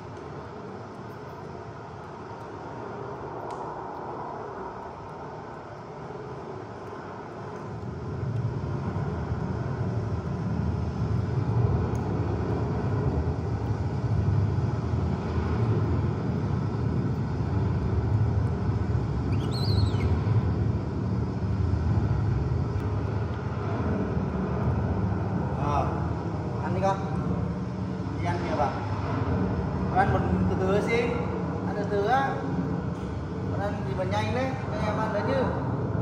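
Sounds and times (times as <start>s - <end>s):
brief high squeak: 19.3s - 20.2s.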